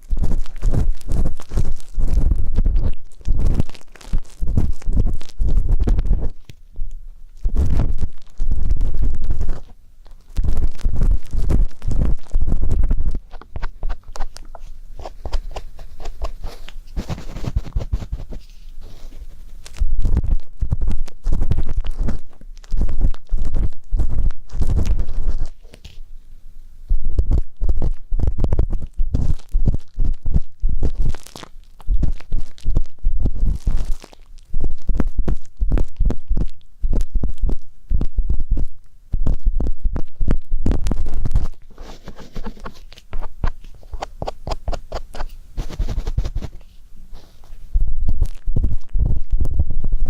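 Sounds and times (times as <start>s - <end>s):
ear-pick scraping and rubbing: 10.4s - 19.8s, 40.9s - 47.7s
low rumble: 47.7s - 50.0s.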